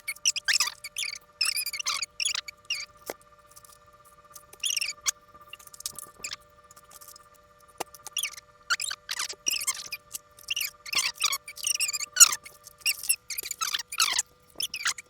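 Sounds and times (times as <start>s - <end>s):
squeaky rubbing: 4.5s - 6.4s, 8.0s - 15.0s.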